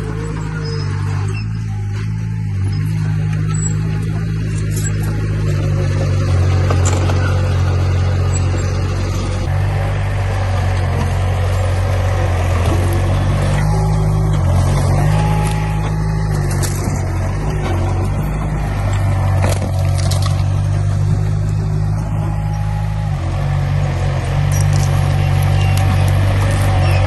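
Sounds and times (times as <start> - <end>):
heavy diesel engine under load: 0.0 - 27.0.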